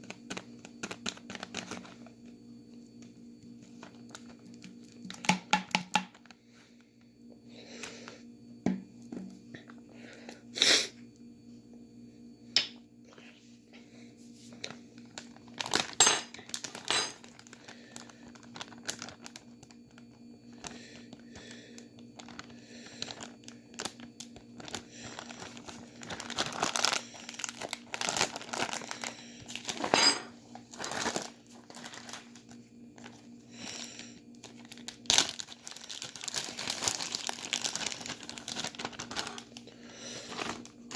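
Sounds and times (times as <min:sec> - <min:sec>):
steady low hum: 0:00.0 - 0:40.9
plastic bags crinkling: 0:00.3 - 0:02.0, 0:14.6 - 0:20.7, 0:22.1 - 0:40.9.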